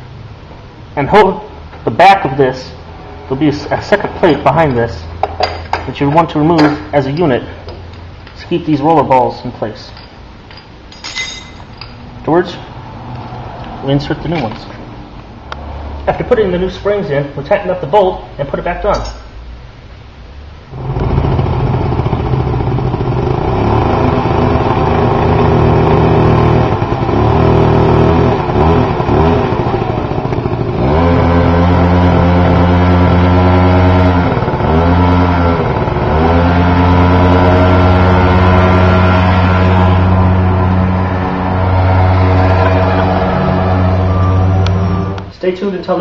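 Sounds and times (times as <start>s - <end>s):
scooter engine running: 20.7s - 45.3s.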